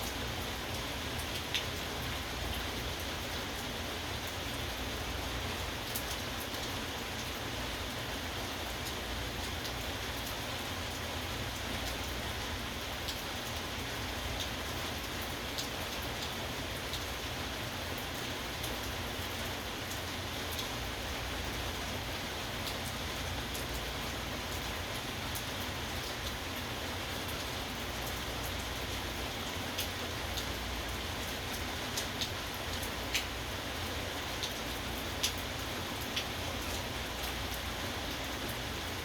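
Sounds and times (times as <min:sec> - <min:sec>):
steady rain falling: 0:00.0 - 0:39.0
sharp raindrop ticks: 0:31.5 - 0:33.4, 0:34.4 - 0:37.6.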